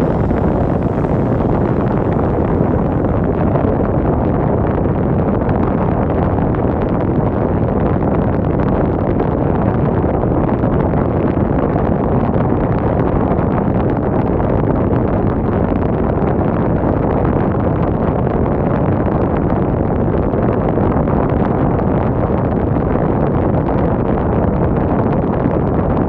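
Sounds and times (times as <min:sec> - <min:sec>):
strong wind rumbling on microphone: 0:00.0 - 0:26.0.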